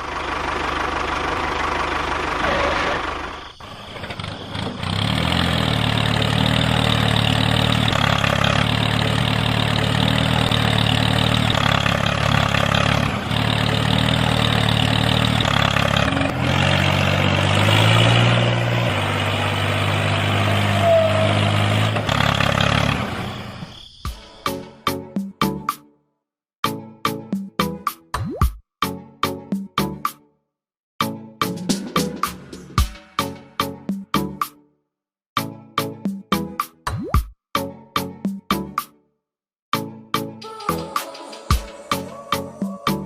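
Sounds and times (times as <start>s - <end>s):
small engine idling: 0.0s - 23.7s.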